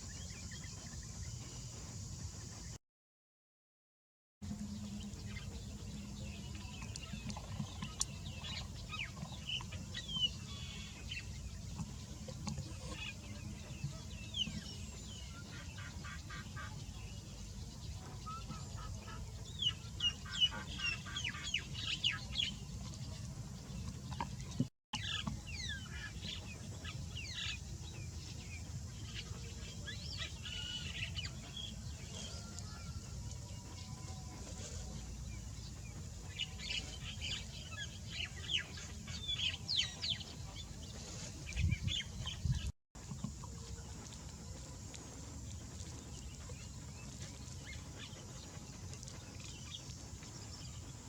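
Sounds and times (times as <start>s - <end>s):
birds chirping: 4.5s - 51.0s.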